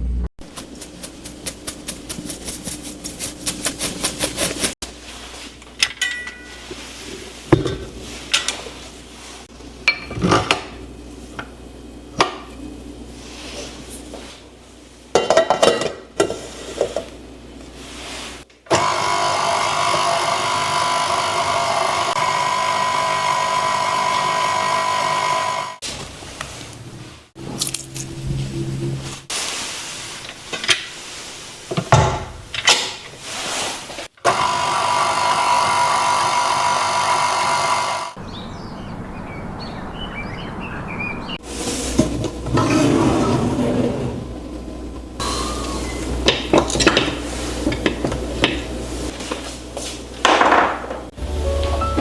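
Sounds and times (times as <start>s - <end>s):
utensils knocking and clattering: 5.8s - 6.8s
electric mixer whirring: 18.7s - 25.8s, 34.2s - 38.2s.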